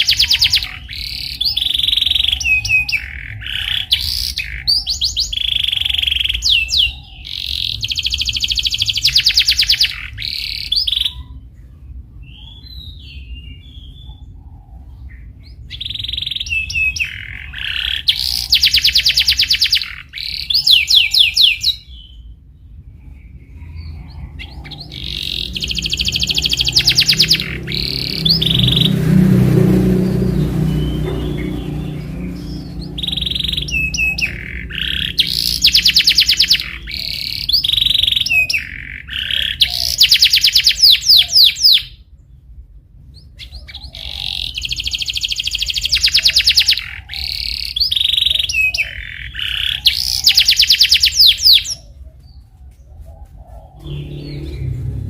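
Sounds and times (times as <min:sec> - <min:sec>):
canary singing trills: 0:00.0 - 0:55.0
low hum: 0:21.8 - 0:38.2, 0:53.7 - 0:55.0.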